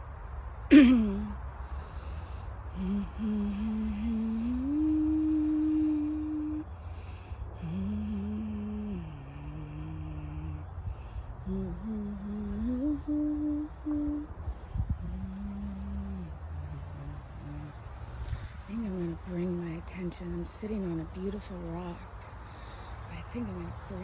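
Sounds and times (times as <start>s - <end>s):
bird chirping: 0.4s - 24.0s
person humming a slow tune: 0.7s - 19.4s.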